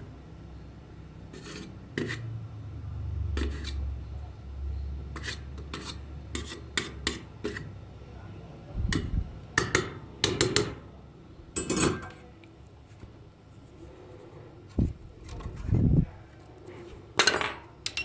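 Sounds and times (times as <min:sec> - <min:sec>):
small parts clicking and clinking: 0:17.2 - 0:18.0.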